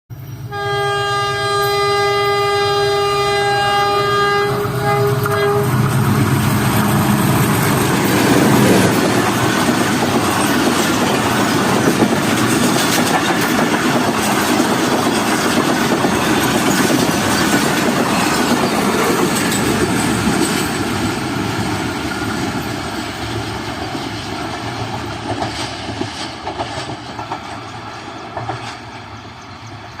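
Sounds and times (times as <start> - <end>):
train passing with rumbling wheels: 0.1 - 30.0
train horn long blast: 0.5 - 5.9
clickety-clack over rail joints: 4.4 - 30.0.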